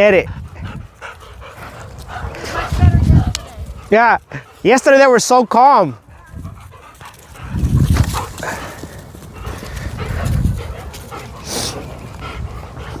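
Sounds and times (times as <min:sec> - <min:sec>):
dogs moving about: 0:06.4 - 0:13.0.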